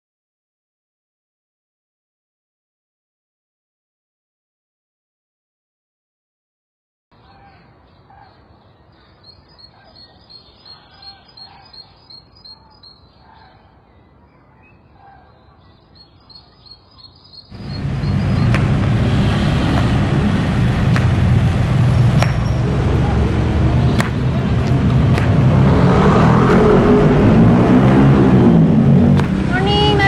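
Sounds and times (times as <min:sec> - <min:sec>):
birds chirping: 0:07.2 - 0:28.0
outdoor rush with low rumble: 0:17.5 - 0:30.0.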